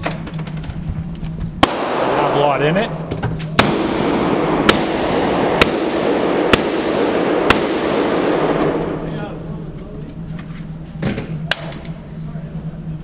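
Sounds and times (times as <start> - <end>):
steady background rush: 0.0 - 13.0
gunshots indoors: 1.6 - 10.2.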